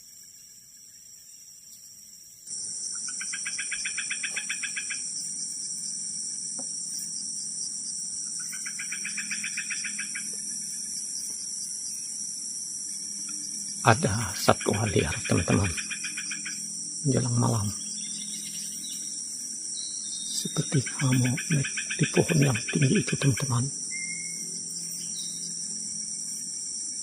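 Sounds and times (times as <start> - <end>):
forest insects chorus: 0.0 - 27.0.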